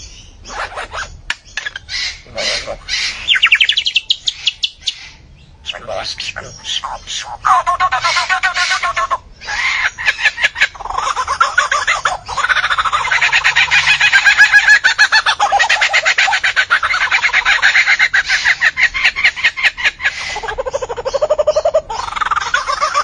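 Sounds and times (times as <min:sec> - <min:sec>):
bird chattering trills: 0:00.0 - 0:23.0.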